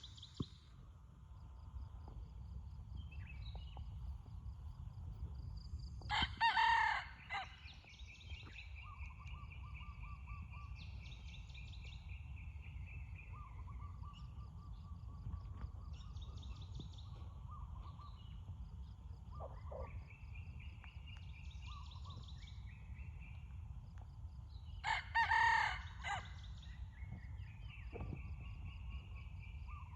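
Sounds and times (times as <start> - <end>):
steady low rumble: 0.0 - 6.1
rooster crowing: 6.1 - 7.6, 24.8 - 26.3.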